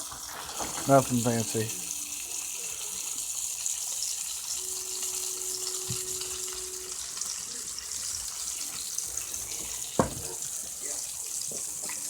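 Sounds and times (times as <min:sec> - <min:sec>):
fish sizzling in a frying pan: 0:00.0 - 0:12.0
faint steady hum: 0:01.4 - 0:09.8
soft knock: 0:10.0 - 0:10.3.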